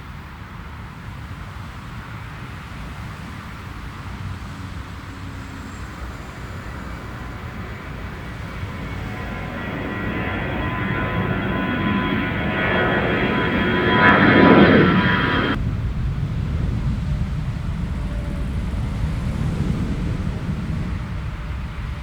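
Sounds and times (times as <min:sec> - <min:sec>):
airliner engines passing by: 0:00.0 - 0:22.0
high engine whine: 0:04.6 - 0:22.0.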